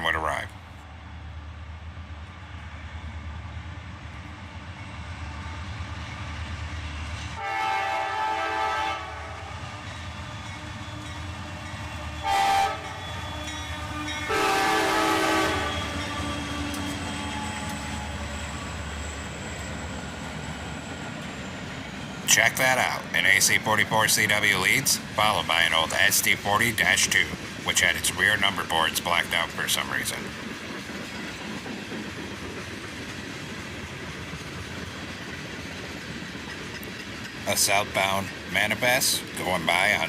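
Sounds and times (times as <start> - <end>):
locomotive horn blasts: 7.4 - 9.6, 12.2 - 17.9.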